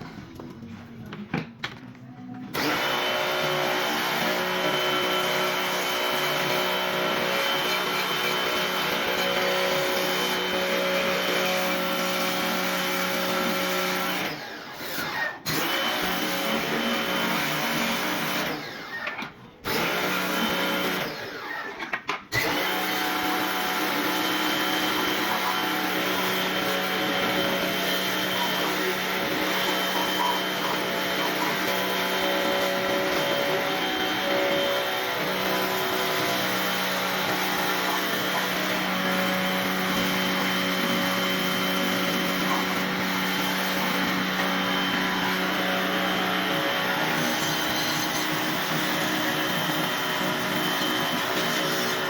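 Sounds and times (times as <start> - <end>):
electric motor humming: 22.4 - 52.0.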